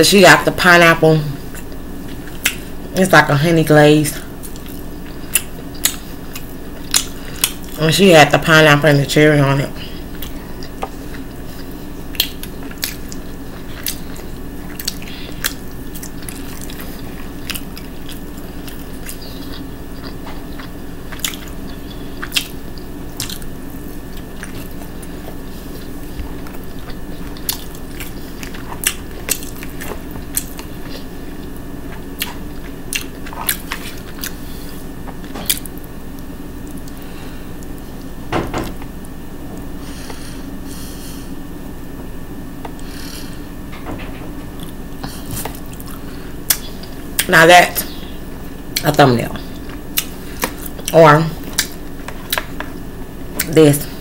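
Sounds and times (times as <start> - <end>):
steady background hum: 0.0 - 54.0
person chewing with smacking: 1.4 - 2.7, 4.2 - 7.8, 9.8 - 38.1, 44.5 - 53.6.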